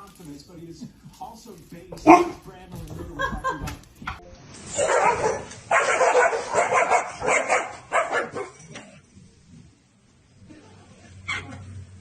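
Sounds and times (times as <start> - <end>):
dog barking: 2.0 - 2.4, 4.8 - 8.6.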